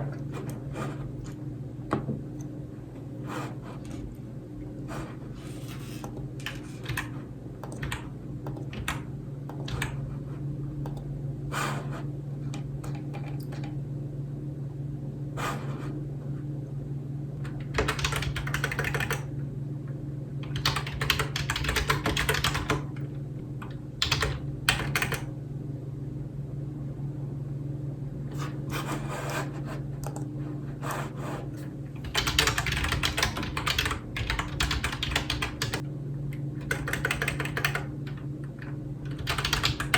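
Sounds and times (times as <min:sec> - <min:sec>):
steady low hum: 0:00.0 - 0:39.9
typing on computer keyboard: 0:06.0 - 0:10.0, 0:17.6 - 0:19.3, 0:20.4 - 0:23.0, 0:24.0 - 0:25.3, 0:32.0 - 0:35.8, 0:36.6 - 0:37.9, 0:39.0 - 0:39.9.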